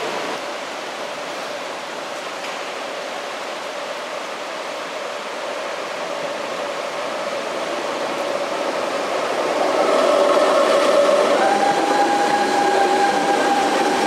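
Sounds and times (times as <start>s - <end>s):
train pulling in: 5.4s - 14.0s.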